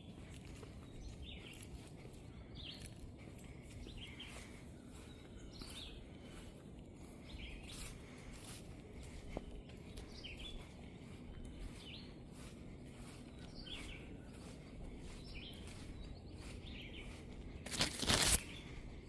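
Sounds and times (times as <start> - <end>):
birds chirping faintly: 0.0 - 19.0.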